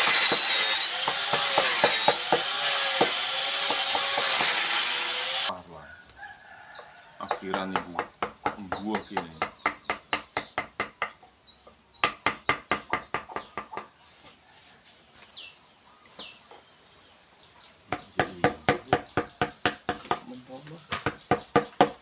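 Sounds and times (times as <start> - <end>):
bird chirping: 5.8 - 14.2, 15.1 - 21.8.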